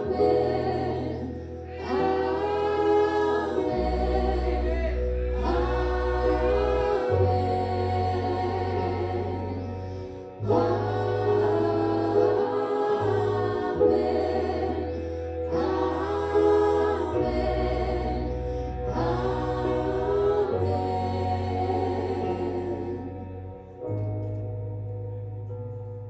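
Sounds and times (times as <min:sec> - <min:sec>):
voices singing worship song: 0:00.0 - 0:23.8
bass and keyboard chords: 0:00.0 - 0:26.0.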